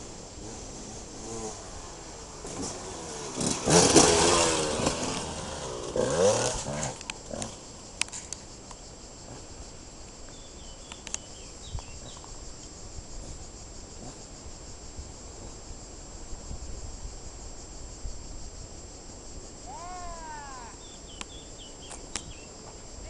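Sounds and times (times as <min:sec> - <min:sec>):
high-pitched insect hiss: 0:00.0 - 0:23.0
faint bird chirps: 0:10.3 - 0:12.4, 0:19.8 - 0:22.6
rising-and-falling bird calls: 0:19.7 - 0:22.5.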